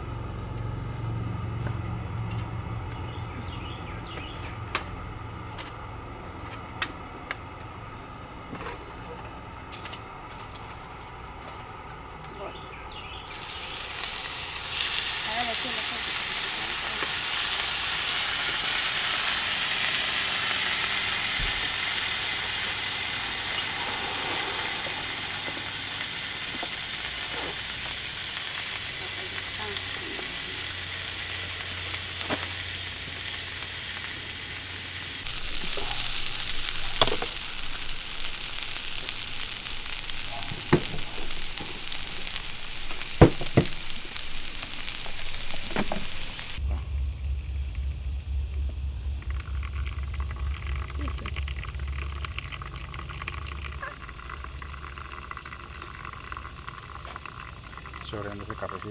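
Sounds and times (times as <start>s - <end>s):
meat sizzling in a pan: 13.2s - 46.6s.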